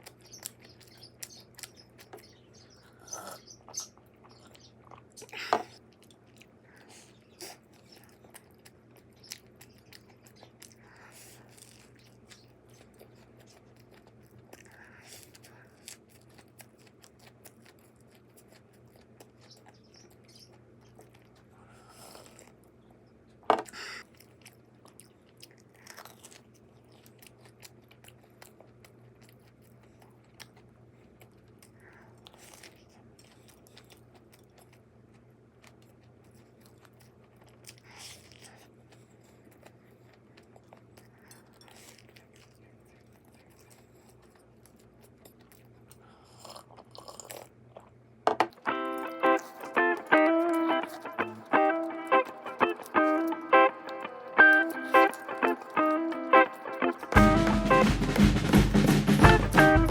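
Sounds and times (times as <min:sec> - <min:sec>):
person chewing crunchy toast: 0:00.0 - 0:57.4
faint low hum: 0:00.0 - 0:59.9.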